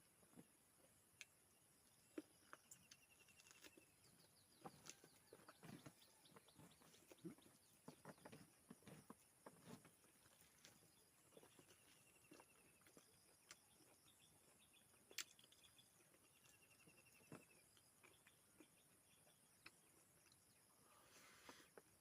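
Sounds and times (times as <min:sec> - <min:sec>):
soft chewing and mouth noises: 0:00.1 - 0:22.0.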